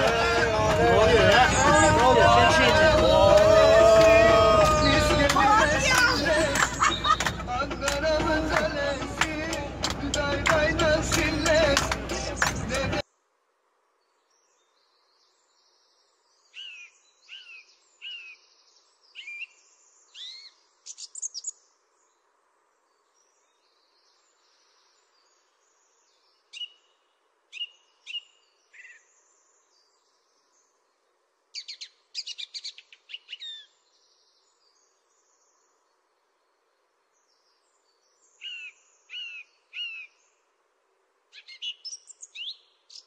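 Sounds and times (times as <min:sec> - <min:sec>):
bird chirping: 0:04.8 - 0:07.6, 0:14.0 - 0:40.5, 0:41.3 - 0:43.0
faint background hiss: 0:09.2 - 0:43.0.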